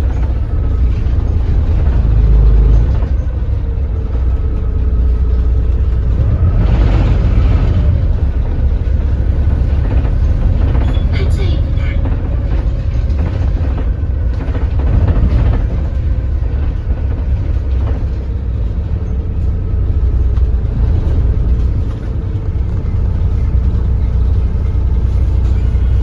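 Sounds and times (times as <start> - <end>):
bus diesel engine rumbling: 0.0 - 26.0.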